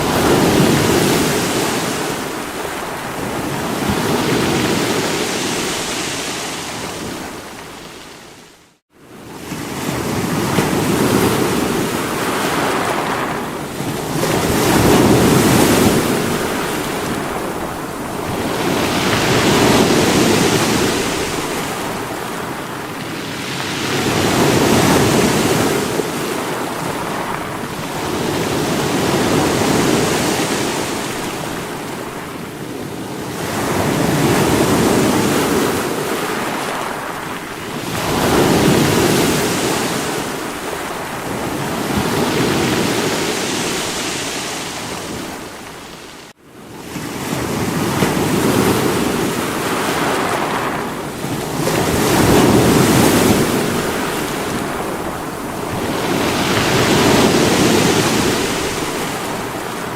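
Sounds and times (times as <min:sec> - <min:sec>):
sea waves breaking on rocks: 0:09.5 - 0:32.2, 0:47.2 - 0:59.9.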